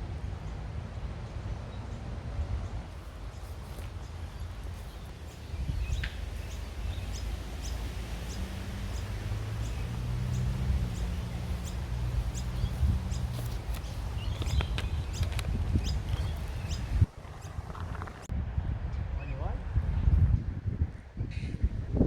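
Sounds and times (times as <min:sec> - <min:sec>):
vehicle engine humming: 0:00.0 - 0:18.3
low traffic rumble: 0:00.0 - 0:22.0
small bird chirping: 0:03.2 - 0:18.3.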